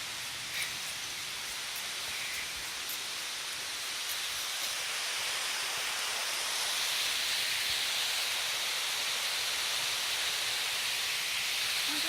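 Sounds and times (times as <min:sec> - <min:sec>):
waterfall rushing: 0:01.0 - 0:12.0.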